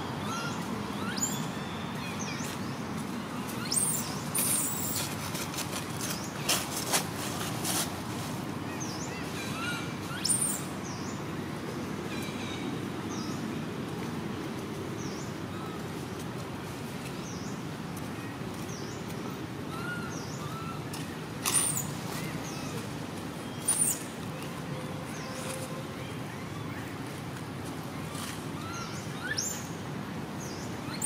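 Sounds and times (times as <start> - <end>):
low background noise: 0.0 - 31.0
rustling: 4.4 - 8.4.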